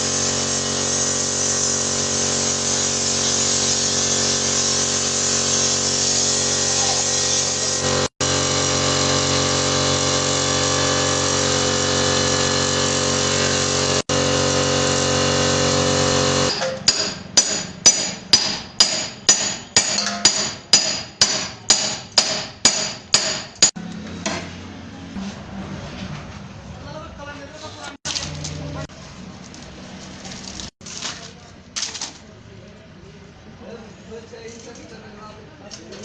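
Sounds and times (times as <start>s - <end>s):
power tool running: 0.0s - 18.0s.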